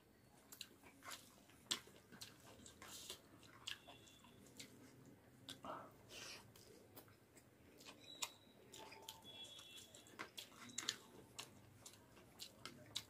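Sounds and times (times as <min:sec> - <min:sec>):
faint chewing mouth clicks: 0:00.5 - 0:13.0.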